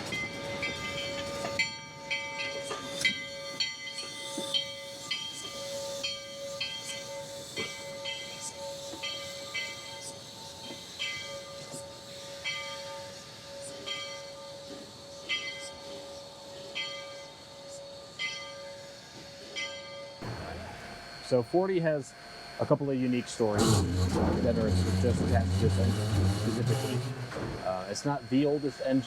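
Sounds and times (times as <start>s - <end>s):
locomotive bell ringing: 0.0s - 21.5s
steam hiss: 2.7s - 19.8s, 23.1s - 29.0s
steady tone: 23.6s - 27.8s.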